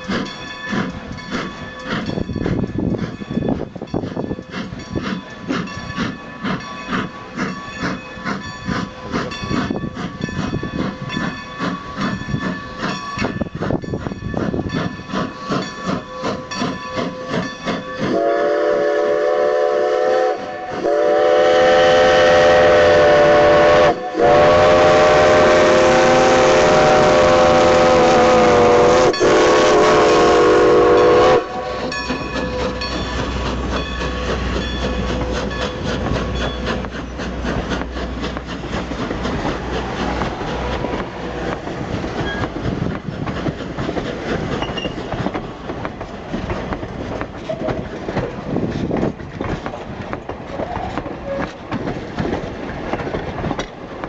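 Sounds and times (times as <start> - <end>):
steam locomotive exhaust chuffs: 0.0 - 54.0
steam whistle blasts: 18.0 - 31.9.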